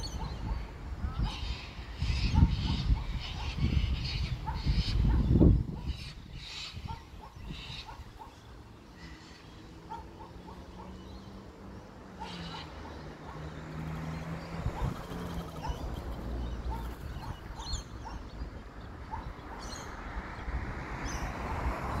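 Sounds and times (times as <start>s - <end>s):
motor vehicle humming: 6.9s - 22.0s.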